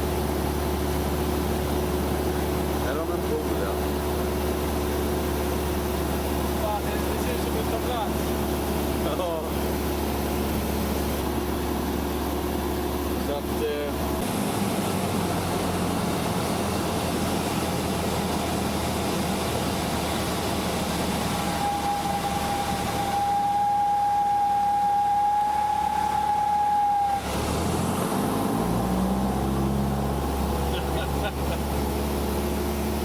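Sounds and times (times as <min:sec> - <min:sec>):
light aircraft engine droning: 0:00.0 - 0:33.0
steady high tone: 0:21.3 - 0:27.3.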